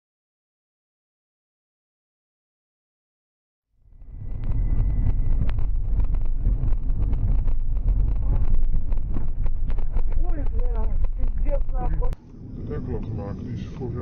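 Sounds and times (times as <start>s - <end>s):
low road rumble: 3.8s - 14.0s
wind buffeting microphone: 3.9s - 14.0s.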